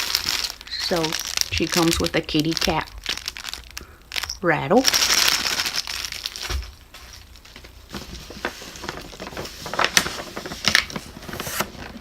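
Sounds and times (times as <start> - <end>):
box packaging rustling: 0.0 - 12.0.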